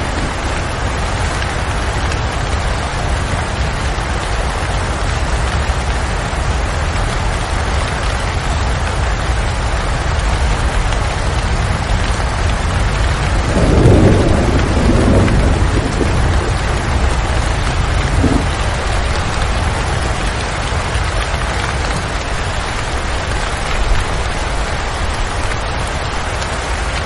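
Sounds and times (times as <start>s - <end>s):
low rumble of thunder: 0.0s - 4.9s, 10.6s - 27.0s
heavy rain: 0.0s - 27.0s.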